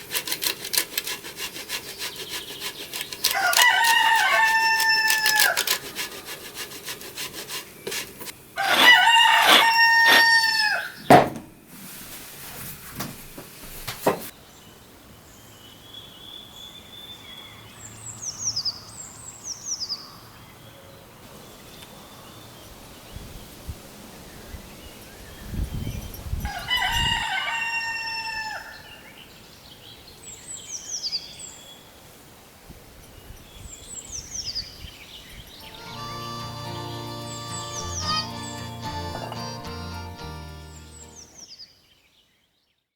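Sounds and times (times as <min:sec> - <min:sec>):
rasping noise: 0:00.0 - 0:10.6
rooster crowing: 0:03.2 - 0:06.0, 0:08.6 - 0:11.0, 0:26.5 - 0:28.8.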